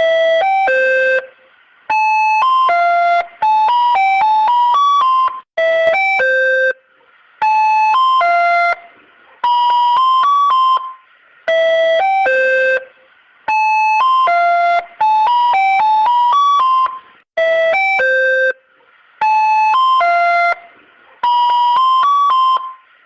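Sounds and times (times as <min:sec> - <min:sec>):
ice cream cart chime melody: 0:01.9 - 0:06.8, 0:07.4 - 0:12.9, 0:13.5 - 0:22.9.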